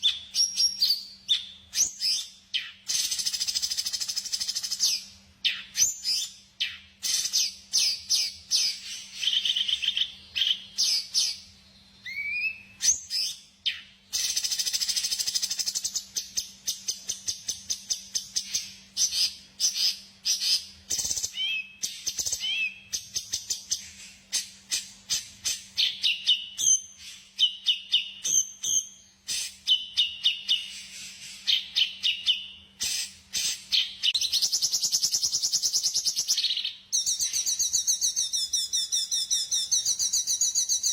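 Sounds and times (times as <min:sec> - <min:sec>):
faint steady hum: 0:00.0 - 0:40.9
songbird trilling and twittering: 0:00.0 - 0:40.9.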